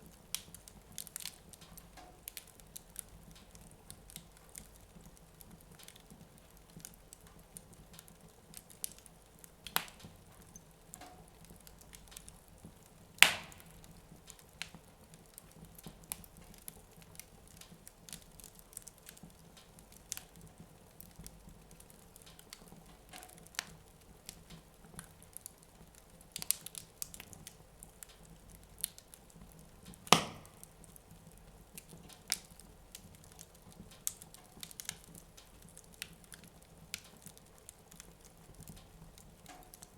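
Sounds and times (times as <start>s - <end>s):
wood fire crackling: 0.0s - 39.9s
loud pops of fire: 6.7s - 20.4s, 28.8s - 38.8s.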